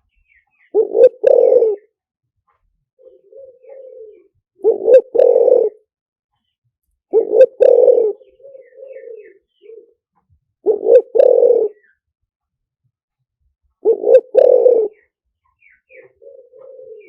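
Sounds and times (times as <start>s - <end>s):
faint dove coo: 0.0s - 2.0s, 2.6s - 5.9s, 7.1s - 12.0s, 13.8s - 17.0s
dove cooing: 0.6s - 2.0s, 3.0s - 5.9s, 7.1s - 12.0s, 13.8s - 17.0s.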